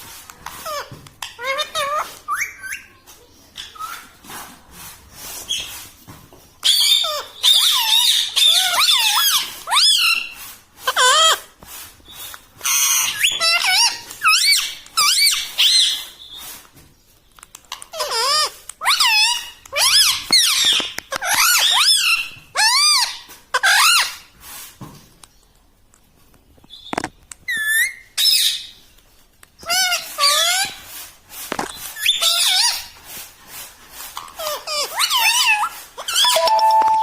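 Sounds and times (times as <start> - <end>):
parrot squawking and chattering: 0.5 - 3.0, 6.6 - 11.5, 12.6 - 16.2, 17.7 - 24.2, 29.6 - 30.8, 32.0 - 32.9, 34.2 - 36.8.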